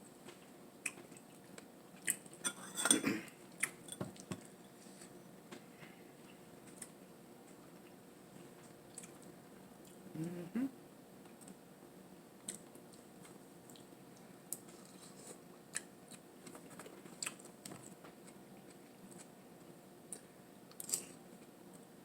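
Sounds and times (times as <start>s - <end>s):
faint steady hum: 0.0s - 22.0s
person chewing food: 0.2s - 2.4s, 8.9s - 10.4s, 13.7s - 19.3s.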